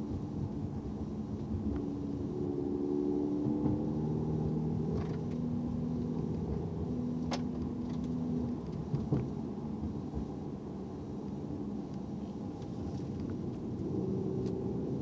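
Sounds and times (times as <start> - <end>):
car engine droning: 0.0 - 15.0
road noise: 0.0 - 15.0.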